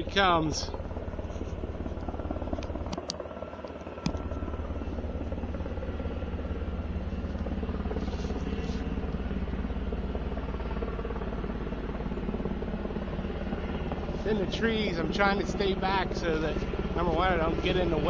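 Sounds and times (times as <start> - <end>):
helicopter rotor beating: 0.0 - 18.0
sharp click: 2.6 - 3.2.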